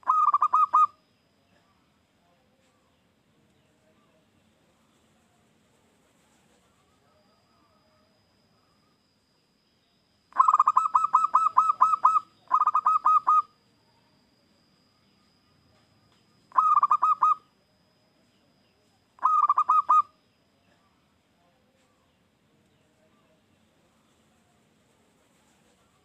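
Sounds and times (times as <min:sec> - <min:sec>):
dove cooing: 0:00.0 - 0:01.0, 0:10.3 - 0:13.5, 0:16.5 - 0:17.4, 0:19.2 - 0:20.1.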